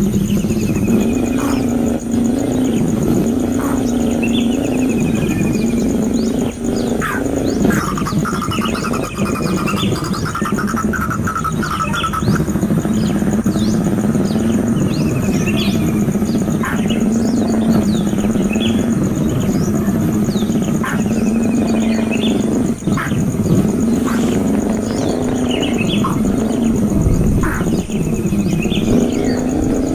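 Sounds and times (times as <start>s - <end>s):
steady low hum: 0.0s - 29.9s
bird chirps and whistles: 6.8s - 16.0s.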